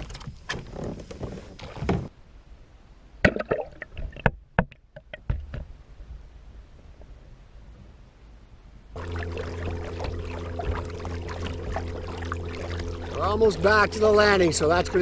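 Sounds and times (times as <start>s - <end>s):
knocks and clunks on a kayak: 0.0s - 2.1s, 3.2s - 6.2s, 9.0s - 15.0s.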